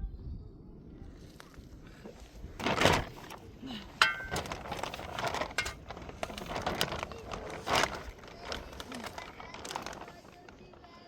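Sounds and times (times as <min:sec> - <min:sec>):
kitchenware rustling scrape: 0:03.9 - 0:08.2.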